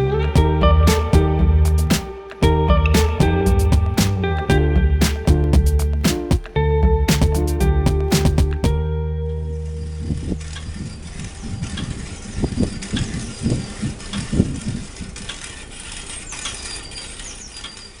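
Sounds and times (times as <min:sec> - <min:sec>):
short high squeaks: 0:09.7 - 0:18.0
bicycle rattling and ratcheting: 0:10.2 - 0:18.0.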